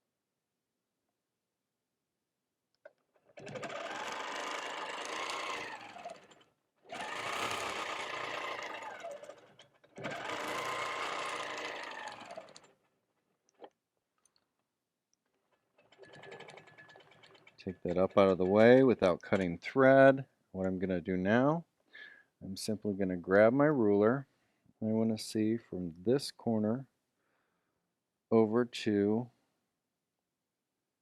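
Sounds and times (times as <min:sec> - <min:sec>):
quilting machine stitching: 0:02.8 - 0:13.7, 0:15.2 - 0:19.6.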